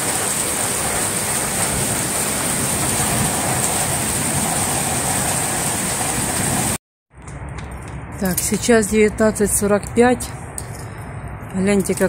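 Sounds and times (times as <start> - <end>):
heavy rain falling: 0.0 - 6.8.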